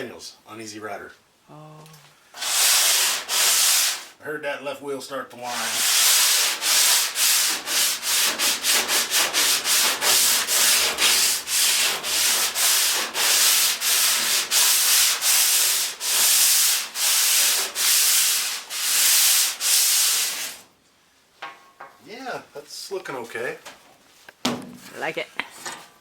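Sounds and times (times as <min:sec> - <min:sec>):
hand sanding scraping strokes: 0:02.4 - 0:04.2, 0:05.4 - 0:20.6.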